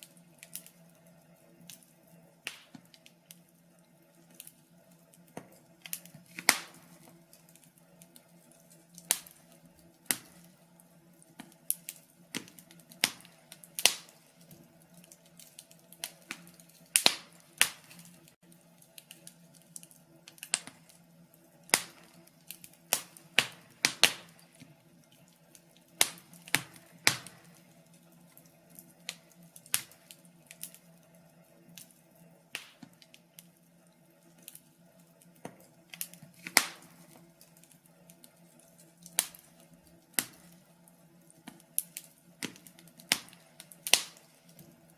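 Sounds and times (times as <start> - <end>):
faint steady hum: 0.0 - 44.9
wood fire crackling and popping: 0.0 - 44.9.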